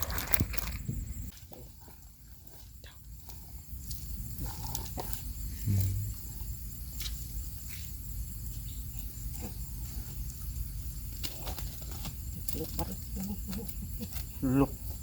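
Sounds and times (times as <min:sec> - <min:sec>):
insects chirring: 0:00.0 - 0:15.0
short low hum: 0:05.7 - 0:06.3.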